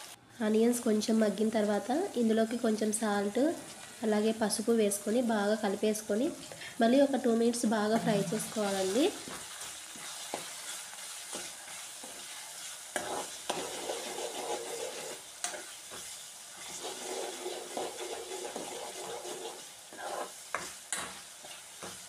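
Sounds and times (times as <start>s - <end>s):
onions sizzling in hot oil: 0.0s - 22.0s
spoon stirring and scraping: 8.6s - 22.0s.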